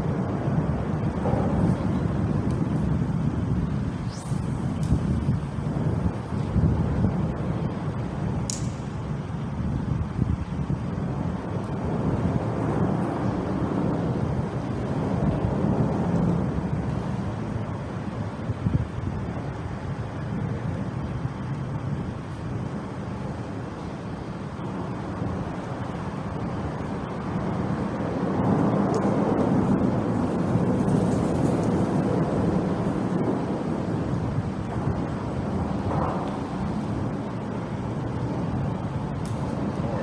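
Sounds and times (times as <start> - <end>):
traffic rumble: 0.0 - 40.0
wind on microphone: 0.0 - 40.0.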